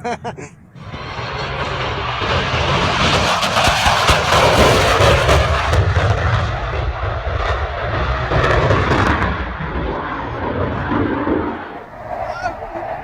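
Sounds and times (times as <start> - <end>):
low-flying aircraft engine roar: 0.6 - 13.0.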